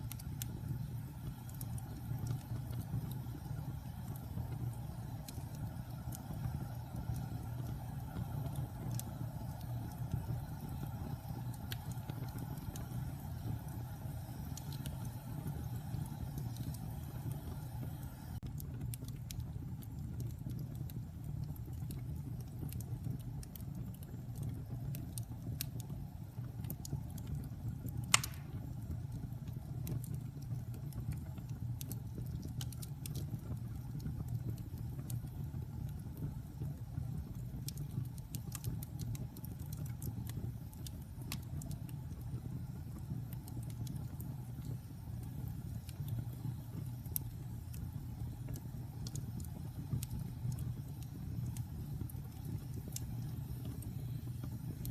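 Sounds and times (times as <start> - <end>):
fire low rumble: 0.0 - 54.9
small fire crackles: 0.0 - 54.9
loud sharp fire pop: 28.1 - 28.6.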